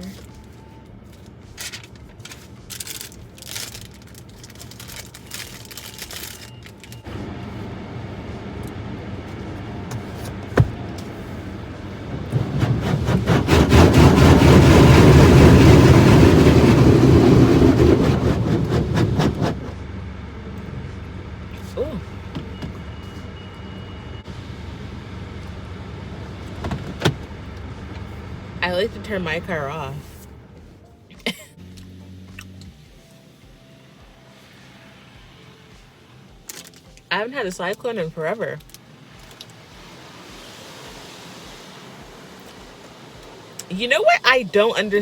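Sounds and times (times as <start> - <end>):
car wash rushing noise: 2.5 - 20.4, 38.2 - 45.0.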